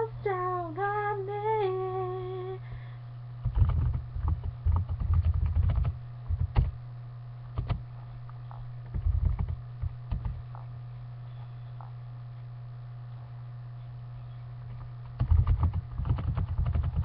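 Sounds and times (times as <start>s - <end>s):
steady low hum: 0.0s - 17.0s
low thumps and clicks: 3.4s - 6.8s, 8.8s - 10.7s.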